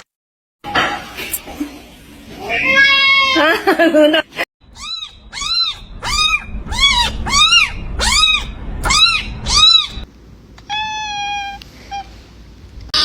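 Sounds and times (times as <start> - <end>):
kitten meowing: 4.7 - 10.0, 10.7 - 12.1.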